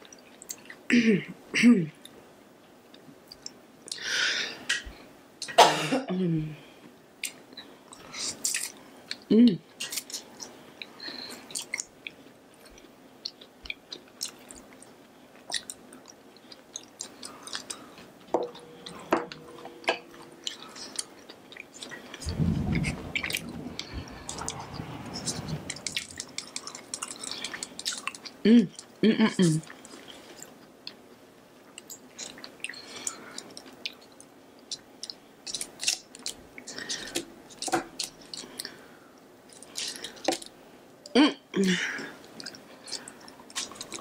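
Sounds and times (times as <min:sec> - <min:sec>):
wet chewing of noodles: 0:09.8 - 0:22.3, 0:23.2 - 0:29.0, 0:29.6 - 0:40.6, 0:42.2 - 0:44.0
low rustle: 0:22.2 - 0:26.3.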